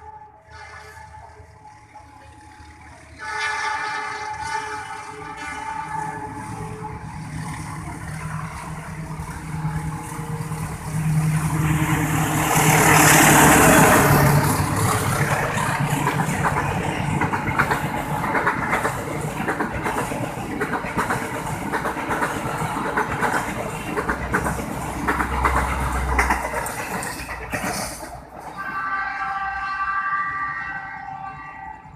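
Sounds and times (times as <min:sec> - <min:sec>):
locomotive engine humming: 0:00.0 - 0:31.9
train cars rattling past: 0:00.0 - 0:31.9
wheels clicking and knocking: 0:12.6 - 0:28.5.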